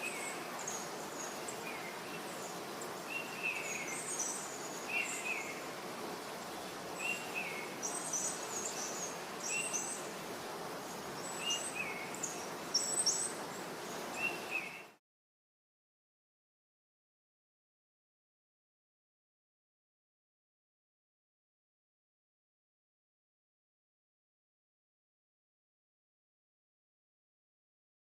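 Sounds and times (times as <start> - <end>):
birds high chirps: 0.0 - 10.2, 10.8 - 15.0.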